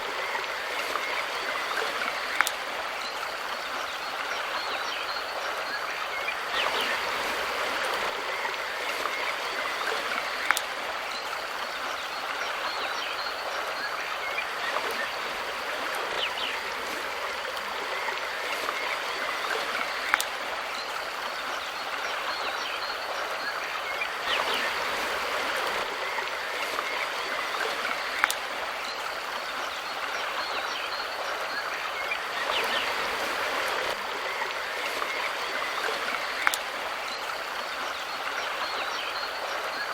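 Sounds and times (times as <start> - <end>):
river rushing over stones: 0.0 - 39.9.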